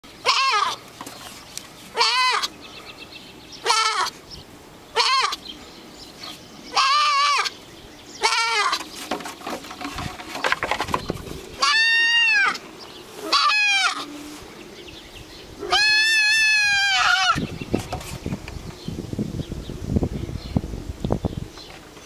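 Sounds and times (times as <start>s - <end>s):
goat bleating: 0.2s - 0.8s, 1.9s - 2.6s, 3.6s - 4.2s, 5.0s - 5.4s, 6.7s - 7.5s, 8.2s - 8.9s, 11.6s - 12.6s, 13.2s - 14.3s, 15.6s - 17.5s.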